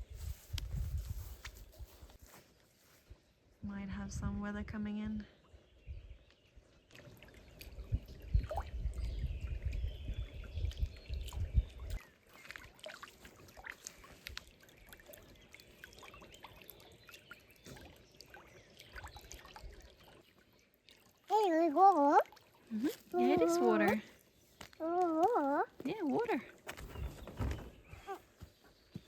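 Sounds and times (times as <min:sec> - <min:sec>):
wind rumbling on microphone: 0:00.0 - 0:02.2, 0:03.6 - 0:06.3, 0:07.4 - 0:12.0
water trickling and lapping: 0:06.3 - 0:29.0.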